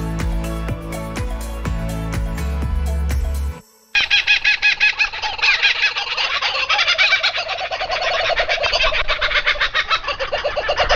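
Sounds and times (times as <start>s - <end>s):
birds chattering: 4.0s - 10.9s.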